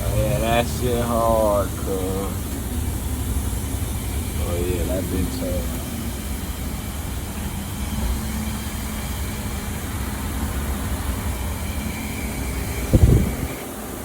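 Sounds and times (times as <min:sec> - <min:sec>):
faint constant hum: 0:00.0 - 0:14.0
steady low rumble: 0:00.0 - 0:14.0.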